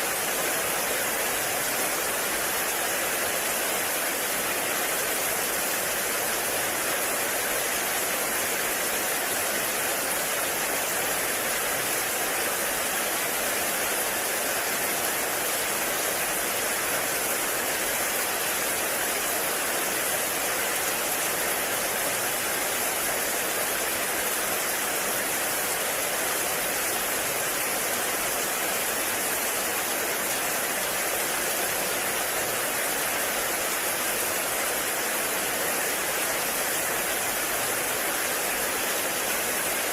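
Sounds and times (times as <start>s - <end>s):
heavy rain in a forest: 0.0s - 39.9s.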